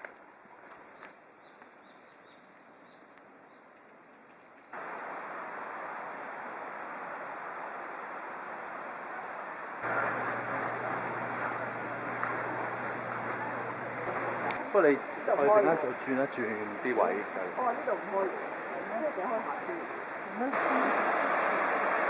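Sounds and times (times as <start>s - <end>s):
rushing stream water: 4.8s - 10.2s.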